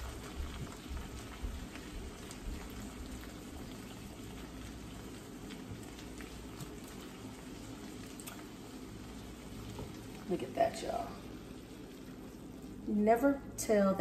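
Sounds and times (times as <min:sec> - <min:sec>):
stir-fry sizzling in a skillet: 0:00.0 - 0:14.0
spatula stirring food: 0:00.1 - 0:10.3.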